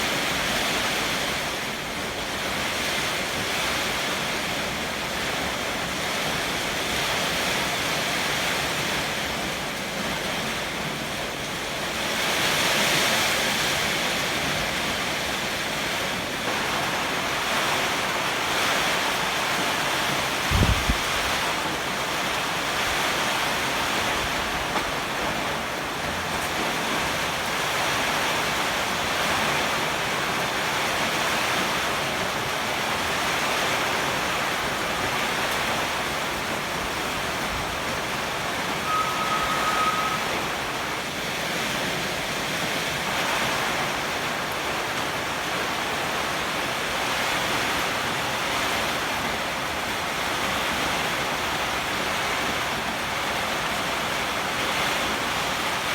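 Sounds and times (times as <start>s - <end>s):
heavy rain: 0.0s - 55.9s
strong wind: 0.0s - 55.9s
brief steady tone: 38.8s - 40.7s.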